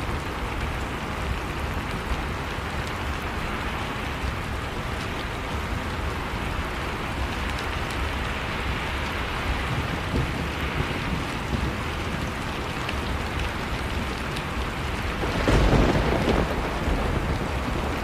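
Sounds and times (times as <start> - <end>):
heavy rain: 0.0 - 18.0
raindrops tapping: 8.9 - 18.0.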